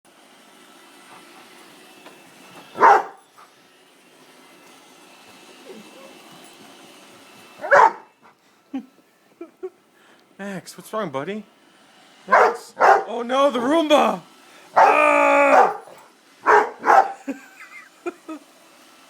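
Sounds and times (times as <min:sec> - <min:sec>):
dog barking: 0:02.8 - 0:03.2, 0:07.6 - 0:08.1, 0:12.3 - 0:13.1, 0:14.8 - 0:17.2.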